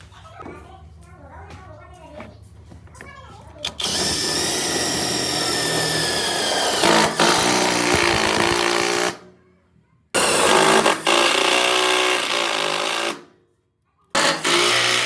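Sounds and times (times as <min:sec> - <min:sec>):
motor-driven machine running: 0:03.6 - 0:09.2.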